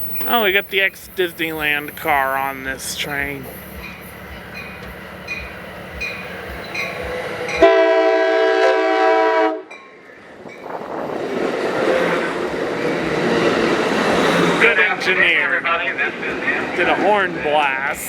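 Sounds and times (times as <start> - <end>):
train rumbling on rails: 0.0 - 18.0
train horn blast: 7.6 - 9.7.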